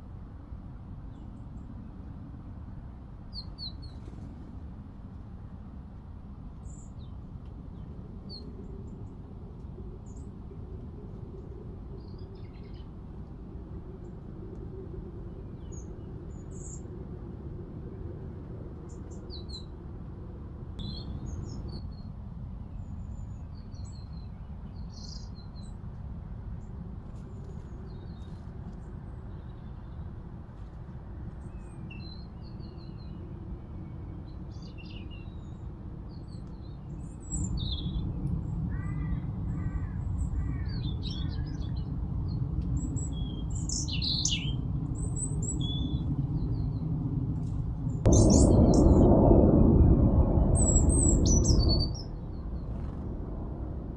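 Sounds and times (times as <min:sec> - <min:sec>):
low background rumble: 0:37.4 - 0:53.9
small birds chirping: 0:50.7 - 0:53.2.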